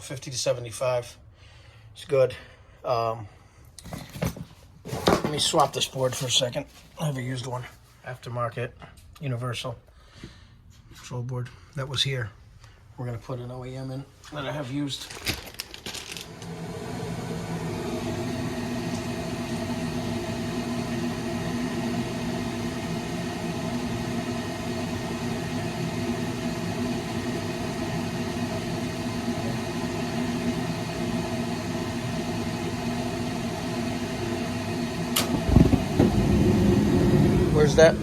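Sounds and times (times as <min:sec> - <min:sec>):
furnace equipment whirring: 0:14.3 - 0:38.0.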